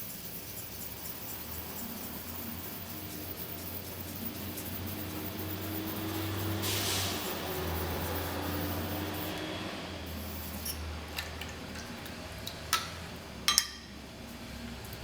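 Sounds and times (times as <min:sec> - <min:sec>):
sharpening stone gritty rubbing: 0:00.0 - 0:09.4, 0:10.2 - 0:10.8.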